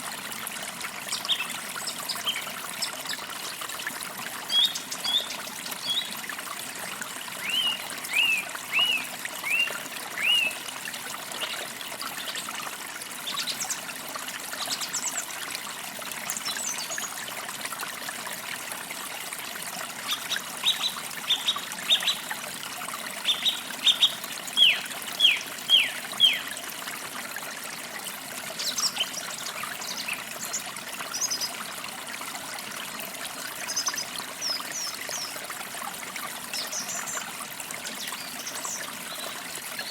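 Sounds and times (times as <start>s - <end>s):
stream trickling: 0.0s - 39.9s
songbirds whistling: 7.4s - 10.6s, 23.3s - 26.5s.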